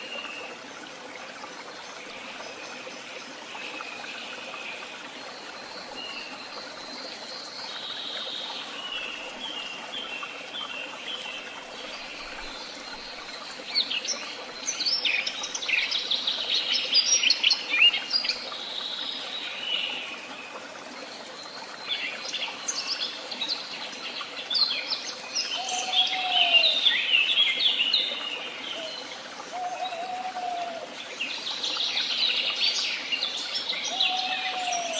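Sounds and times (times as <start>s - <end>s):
songbirds singing: 21.4s - 34.9s.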